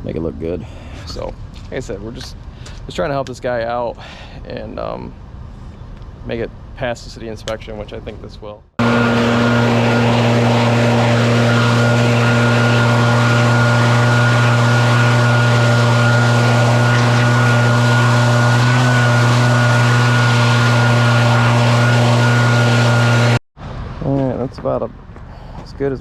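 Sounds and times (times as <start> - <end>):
small machine humming with whine: 8.8 - 23.4.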